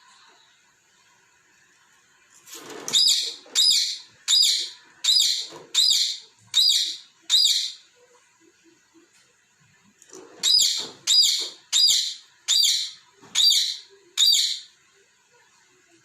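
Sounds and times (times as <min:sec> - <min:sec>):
parrot chirping: 0:02.9 - 0:07.9, 0:10.3 - 0:14.8.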